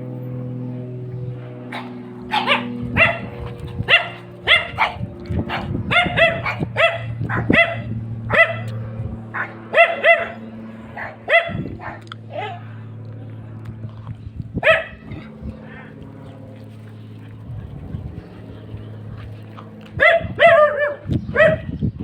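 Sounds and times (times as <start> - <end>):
steady low drone: 0.0 - 22.0
dog barking: 1.7 - 8.7, 9.3 - 10.4, 11.0 - 12.6, 14.6 - 15.1, 20.0 - 21.7.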